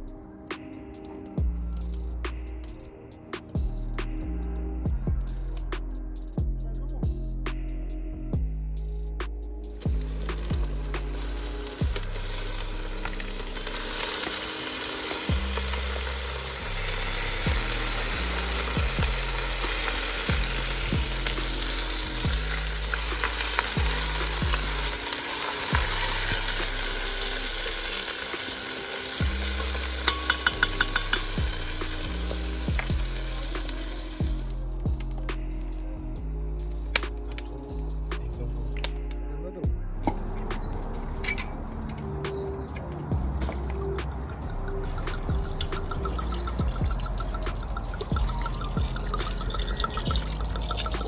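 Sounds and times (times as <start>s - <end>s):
background music bass line: 0.0s - 28.6s, 29.2s - 51.0s
meat and onions sizzling in oil: 10.0s - 34.6s.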